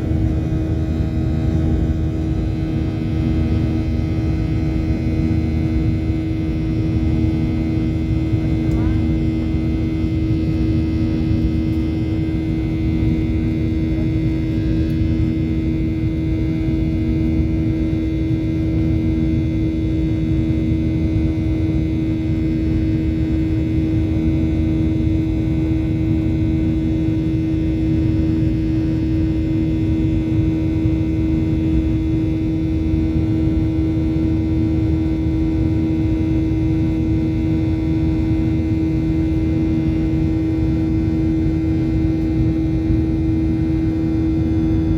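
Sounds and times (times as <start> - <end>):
jet engine drone in cabin: 0.0 - 44.9.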